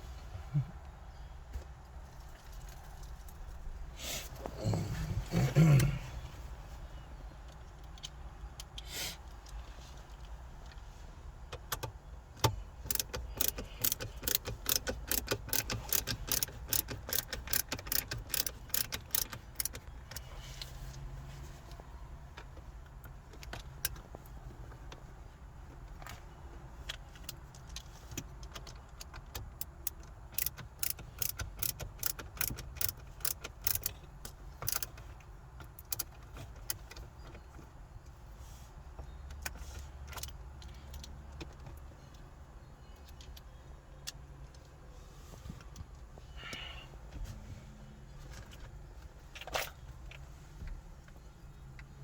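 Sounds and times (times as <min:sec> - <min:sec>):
metallic tool clicks and rattles: 0:12.9 - 0:19.8, 0:30.3 - 0:33.9, 0:34.6 - 0:34.9.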